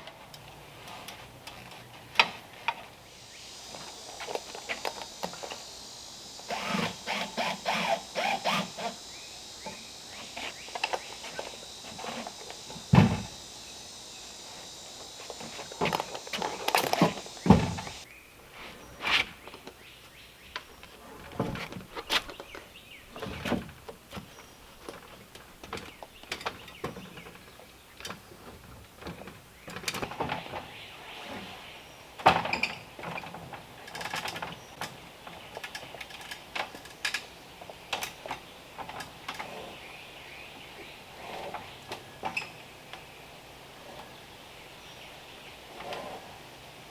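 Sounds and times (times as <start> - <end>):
steady high hiss: 0.0 - 18.9, 29.5 - 46.9.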